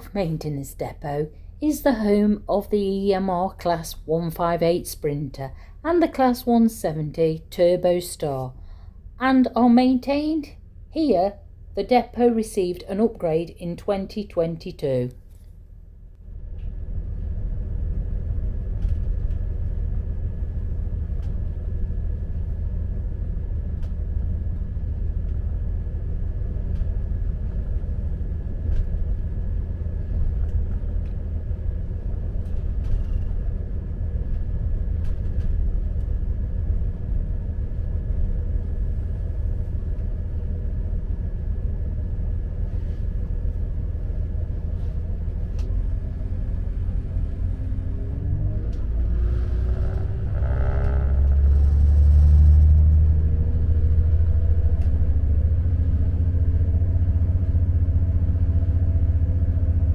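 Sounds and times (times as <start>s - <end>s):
diesel train rumbling: 16.2s - 59.9s.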